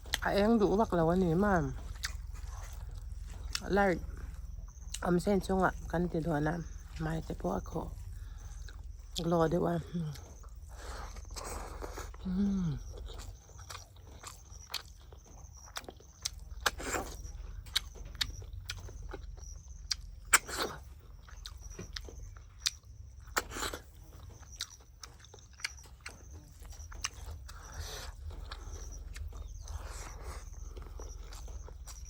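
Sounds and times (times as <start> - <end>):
chewing and biting: 0.0 - 5.9, 10.0 - 32.0.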